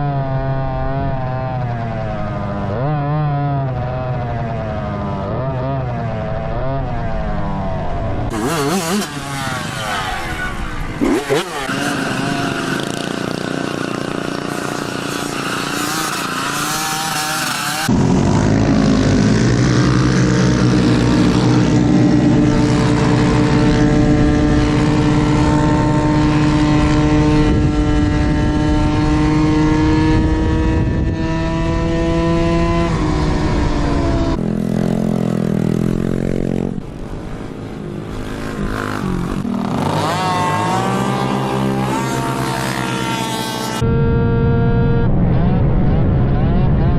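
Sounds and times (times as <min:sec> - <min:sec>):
small motorbike engines revving: 0:00.0 - 0:44.7
motorbike accelerating: 0:00.0 - 0:46.9.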